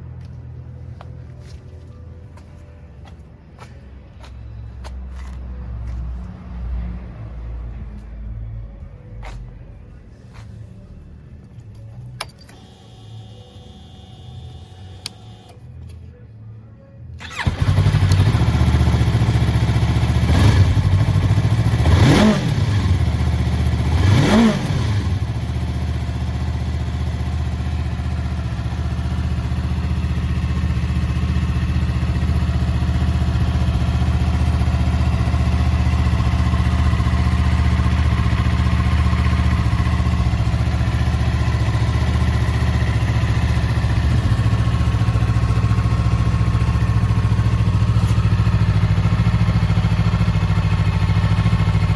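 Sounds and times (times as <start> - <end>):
motorcycle engine idling: 17.2 - 51.9
motorcycle engine revving: 17.2 - 51.9.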